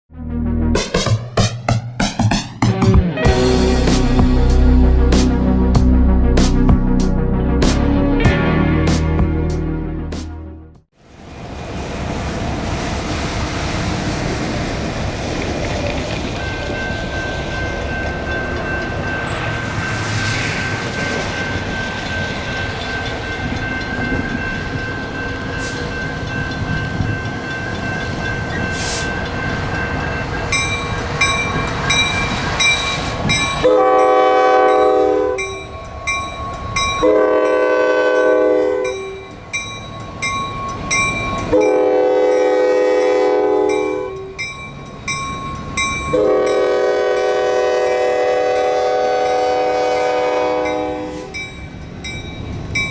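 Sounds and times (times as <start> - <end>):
train rumbling past: 1.8 - 9.7, 11.0 - 52.9
locomotive air horn blasts: 33.6 - 35.6, 37.0 - 39.3, 41.5 - 44.3, 46.1 - 51.4.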